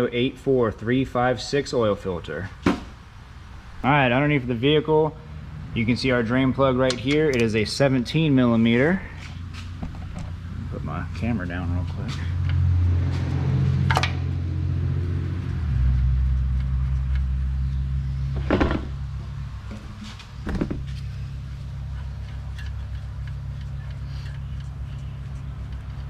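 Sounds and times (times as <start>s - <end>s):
steady low hum: 0.6s - 12.9s, 14.4s - 26.0s
short knocks: 19.7s - 21.0s.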